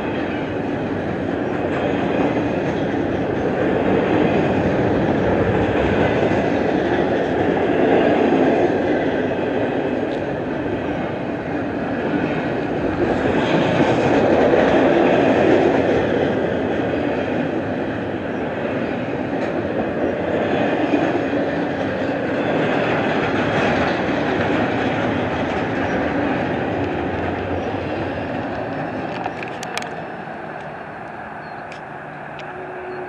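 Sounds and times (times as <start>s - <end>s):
freight train wheels rumbling: 0.0s - 33.0s
faint clicks: 28.3s - 30.0s.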